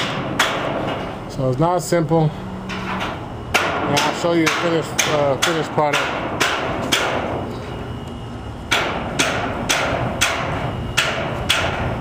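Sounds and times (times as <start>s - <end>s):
hammer striking sheet metal: 0.0s - 1.1s, 2.7s - 7.4s, 8.7s - 12.0s.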